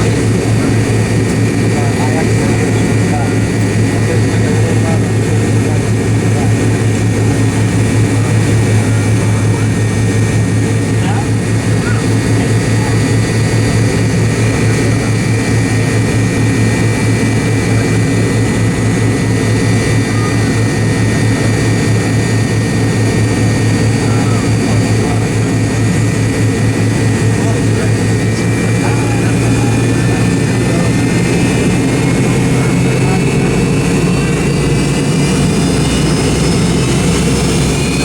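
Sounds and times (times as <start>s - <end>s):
high engine whine: 0.0s - 38.0s
jet engine drone: 0.0s - 38.0s.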